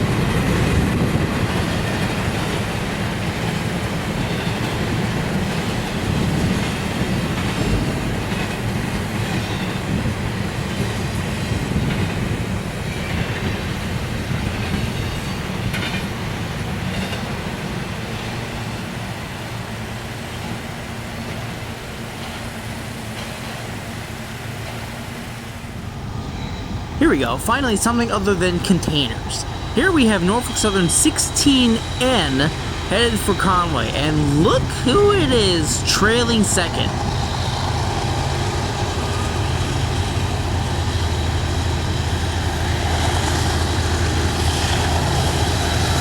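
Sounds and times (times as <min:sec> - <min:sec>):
freight train rumbling past: 0:00.0 - 0:46.0.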